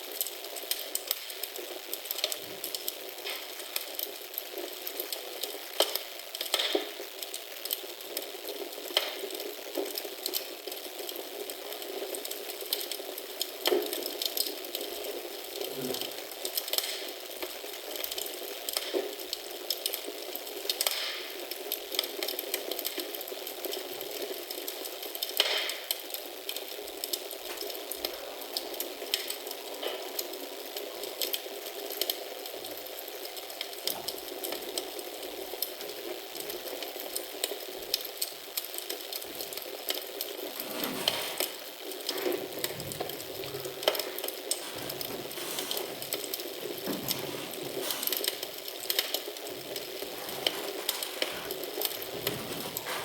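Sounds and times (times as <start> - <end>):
fire popping: 0.0 - 53.0
wood fire crackling: 0.0 - 53.0.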